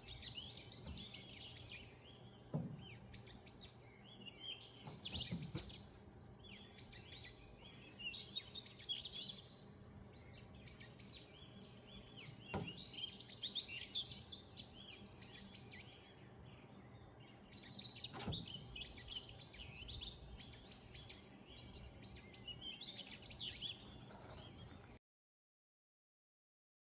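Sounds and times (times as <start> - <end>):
songbirds chirping and singing: 0.0 - 25.0.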